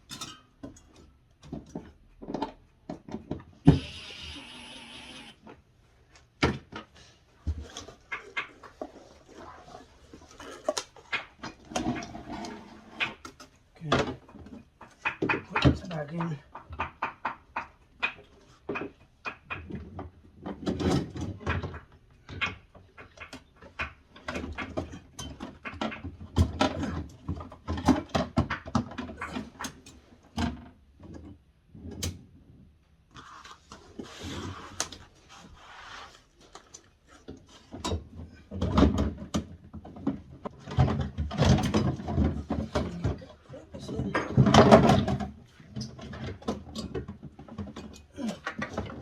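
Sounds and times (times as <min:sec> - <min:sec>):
plastic parts clicking and clattering: 0:36.6 - 0:49.0.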